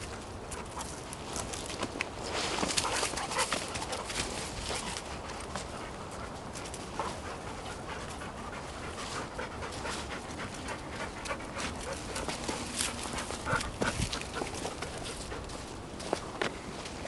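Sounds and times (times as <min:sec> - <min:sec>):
crackles and rustles: 0:00.0 - 0:17.0
dog panting: 0:02.6 - 0:16.1.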